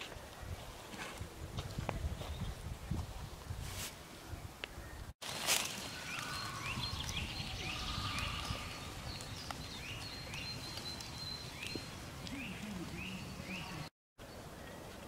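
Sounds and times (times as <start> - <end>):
bird short rising call: 5.9 - 9.4.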